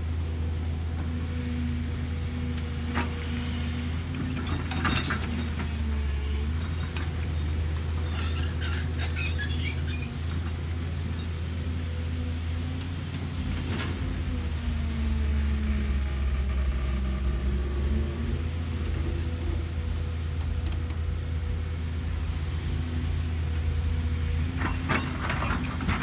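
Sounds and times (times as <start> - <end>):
diesel engine droning: 0.0 - 26.0
metallic squeal and clatter: 3.0 - 11.4, 24.5 - 26.0.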